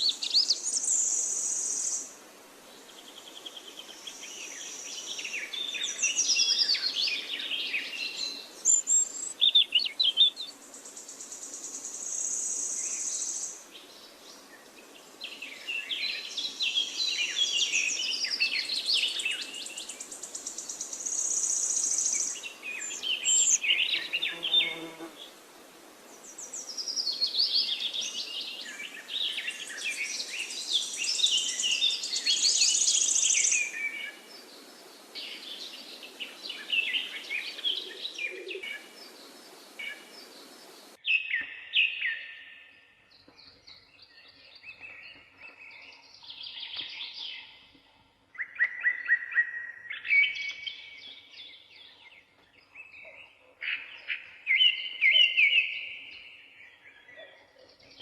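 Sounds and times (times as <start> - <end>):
steady hiss: 0.0 - 9.8, 10.4 - 41.0
birds chirping and singing: 12.3 - 25.1, 26.2 - 58.0.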